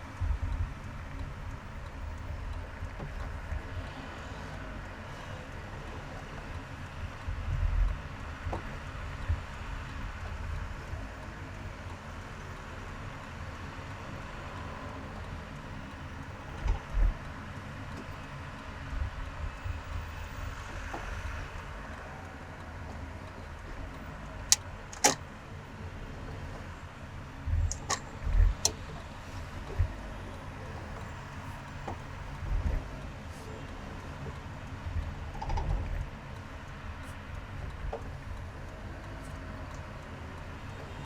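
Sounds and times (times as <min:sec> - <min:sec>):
car road and engine noise: 0:00.0 - 0:41.0
sharp clicks: 0:24.3 - 0:25.3, 0:27.5 - 0:29.0.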